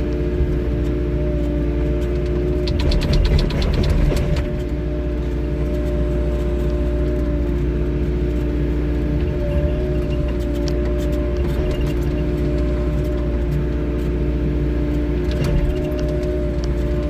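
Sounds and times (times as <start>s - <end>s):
excavator diesel engine running: 0.0s - 17.0s
hydraulic whine: 0.0s - 17.0s
rattling clicks of bucket: 2.0s - 4.7s.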